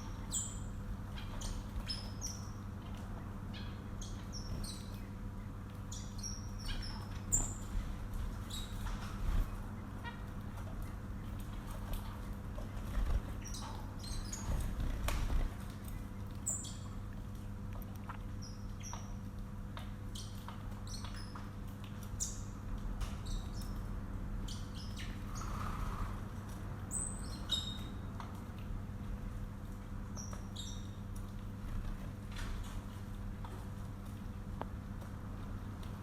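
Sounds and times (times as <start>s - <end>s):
pet birds chirping: 0.0s - 25.6s, 26.9s - 28.3s, 30.2s - 31.1s
steady low hum: 0.0s - 36.0s.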